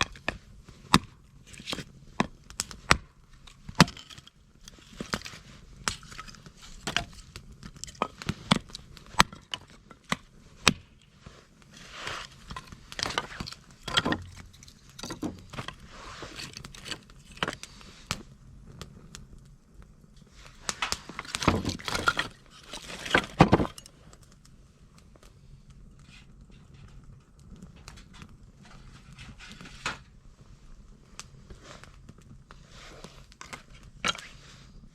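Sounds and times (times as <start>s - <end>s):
wood fire crackling: 0.0s - 34.9s
clattering handling noise: 12.0s - 17.6s, 20.7s - 23.9s.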